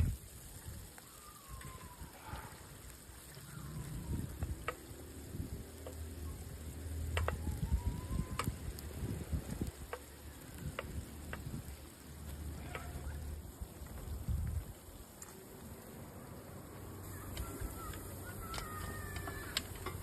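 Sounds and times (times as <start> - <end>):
food sizzling in a pan: 0.0 - 20.0
sharp clicks: 6.8 - 9.0.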